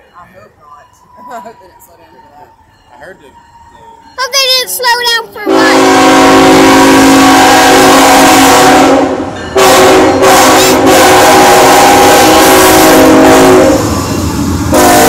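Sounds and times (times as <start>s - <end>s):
train rumbling: 0.0s - 15.0s
locomotive horn blasts: 5.4s - 14.1s, 14.7s - 15.0s.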